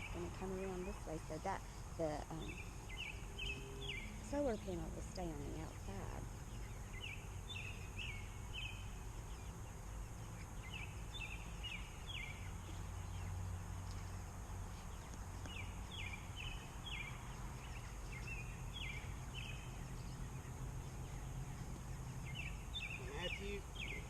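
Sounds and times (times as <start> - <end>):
low outdoor rumble: 0.0 - 24.0
chickens peeping: 5.0 - 24.0.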